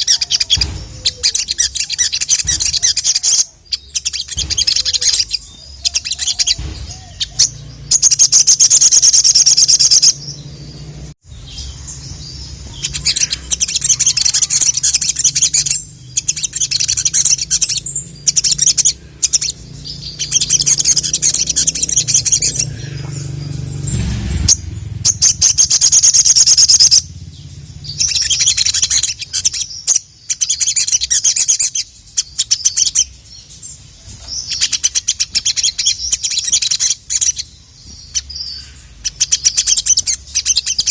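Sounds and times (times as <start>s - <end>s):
bird high-pitched chirping: 0.0s - 40.9s.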